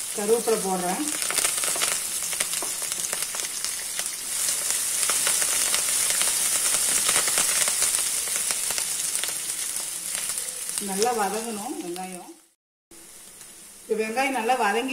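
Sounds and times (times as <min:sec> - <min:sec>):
onions sizzling in hot oil: 0:00.0 - 0:14.9.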